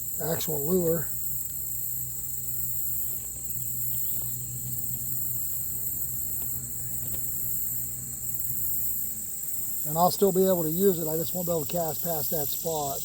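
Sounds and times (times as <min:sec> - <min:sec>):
crickets chirring: 0:00.0 - 0:13.0
faint ticks: 0:00.4 - 0:10.0, 0:10.8 - 0:13.0.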